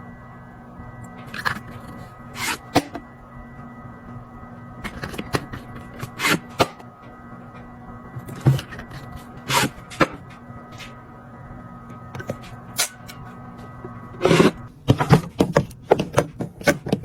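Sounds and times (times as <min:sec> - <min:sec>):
steady low hum: 0:00.0 - 0:17.0
items clicking and knocking: 0:14.2 - 0:17.0.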